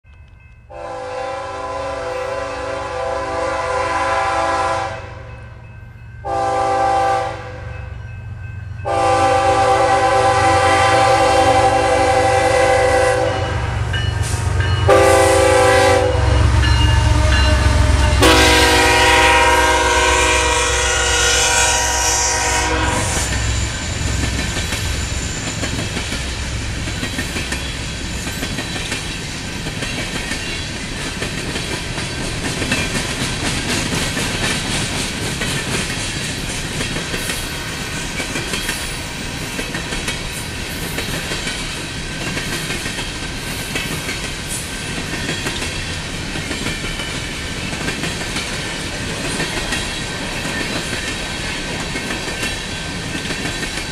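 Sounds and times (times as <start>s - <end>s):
locomotive air horn blasts: 0.7s - 5.3s, 6.2s - 7.7s, 8.8s - 24.1s
locomotive engines rumbling: 7.9s - 36.9s
train wheel clatter on rails: 23.0s - 53.9s.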